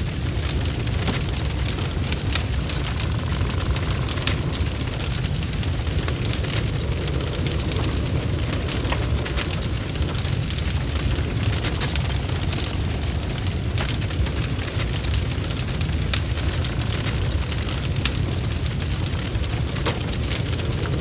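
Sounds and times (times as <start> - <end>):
bonfire crackling: 0.0 - 21.0.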